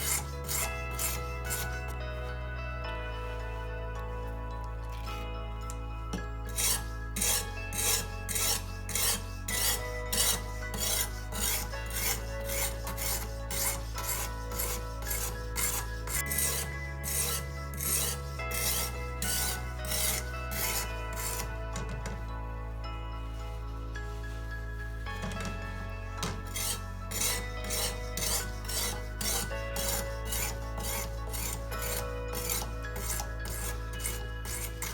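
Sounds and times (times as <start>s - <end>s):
sharpening stone rasping on knife: 0.0s - 2.0s, 6.5s - 21.5s, 26.2s - 34.9s.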